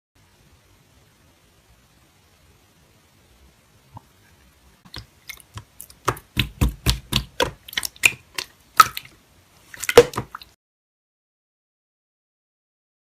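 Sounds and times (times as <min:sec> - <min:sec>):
slime squished by hand: 0:04.9 - 0:10.5.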